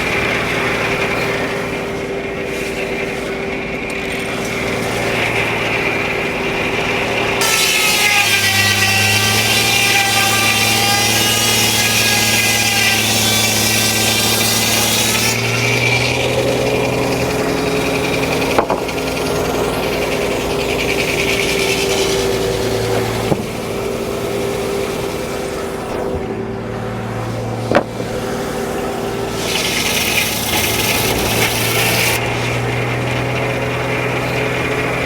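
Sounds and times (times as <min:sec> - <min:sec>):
circular saw ringing through log: 0:00.0 - 0:35.0
sawmill power unit running: 0:00.0 - 0:35.0.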